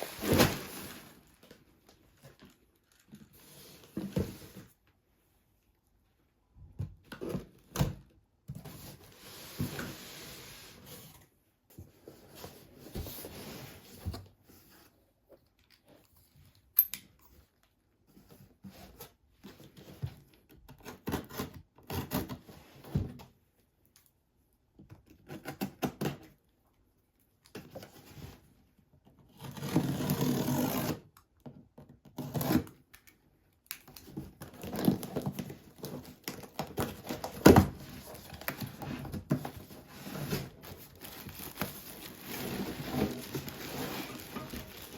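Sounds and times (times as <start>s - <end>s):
rustling: 37.7s - 44.9s.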